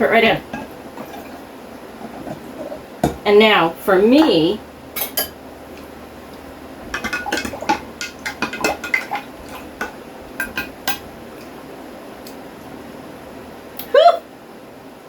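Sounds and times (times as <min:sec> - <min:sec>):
utensils clinking against dishes: 0:04.2 - 0:05.4, 0:06.9 - 0:11.1.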